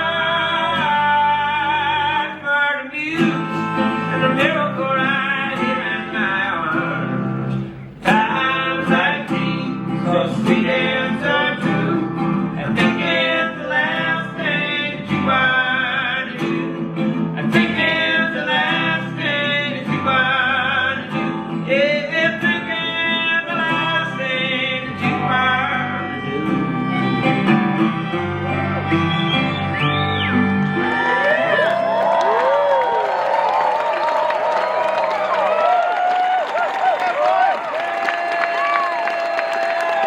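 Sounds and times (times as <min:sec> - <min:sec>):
plucked guitar: 0:03.0 - 0:31.9
wavering melodic lead line: 0:26.0 - 0:31.4.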